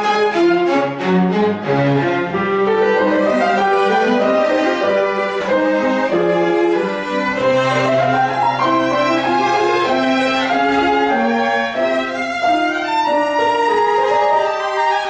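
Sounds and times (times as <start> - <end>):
piano: 0.0 - 15.0
violin viola and cello bowing: 0.0 - 15.0.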